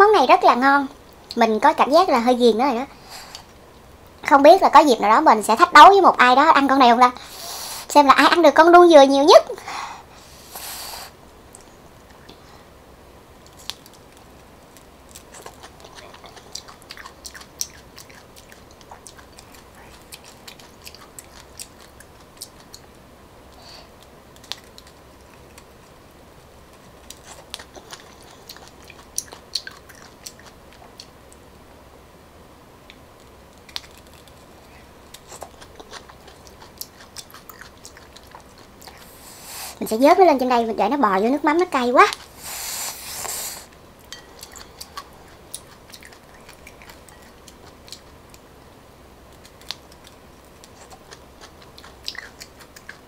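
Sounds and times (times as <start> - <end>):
wet chewing mouth sounds: 15.1 - 22.9, 26.8 - 31.2, 35.1 - 39.8, 42.1 - 48.4, 49.3 - 53.0.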